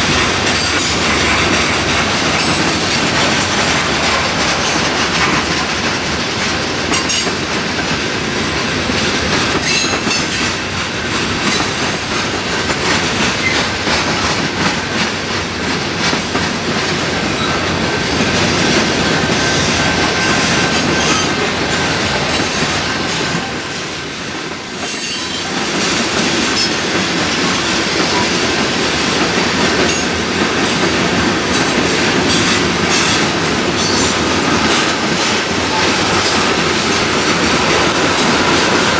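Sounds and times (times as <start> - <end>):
wheels rolling on rails: 0.0 - 23.8
train cars clanking: 0.0 - 38.9.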